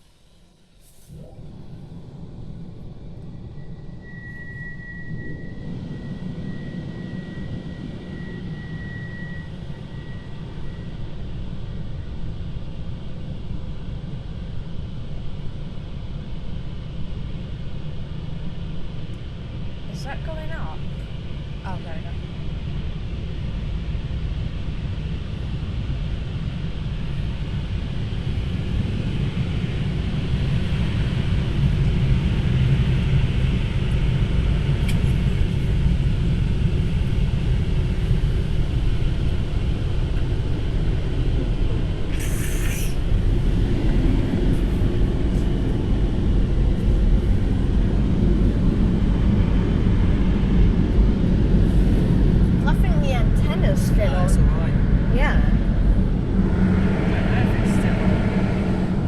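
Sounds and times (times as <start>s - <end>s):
brief hiss: 0.7s - 1.3s, 42.1s - 43.0s.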